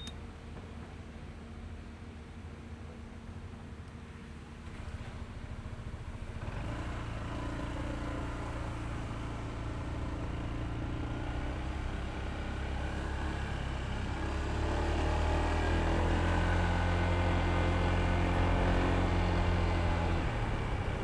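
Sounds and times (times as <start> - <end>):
scooter engine running: 4.6 - 21.0.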